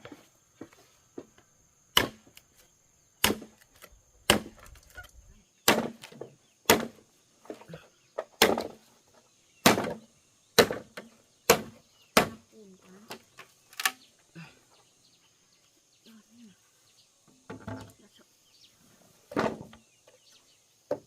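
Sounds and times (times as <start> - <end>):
blade chopping bamboo: 1.9 - 2.5, 3.2 - 5.0, 5.6 - 7.0, 8.4 - 8.8, 9.6 - 10.0, 10.6 - 12.4.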